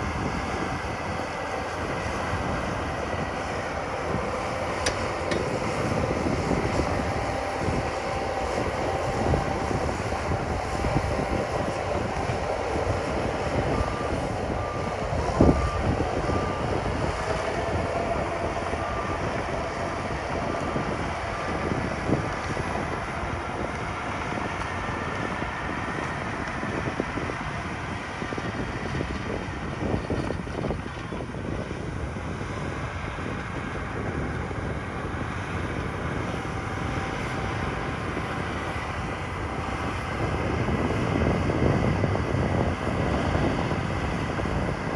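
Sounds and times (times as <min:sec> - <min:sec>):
diesel engines of earthmovers: 0:00.0 - 0:44.9
reversing alarm beeping: 0:04.0 - 0:27.4.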